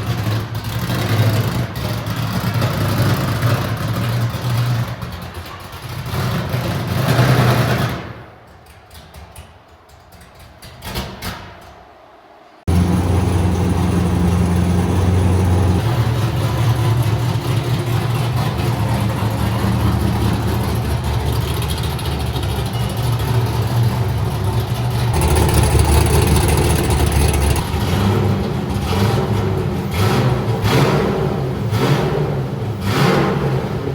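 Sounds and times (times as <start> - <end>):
car engine running loudly: 12.7 - 22.6, 24.4 - 33.0.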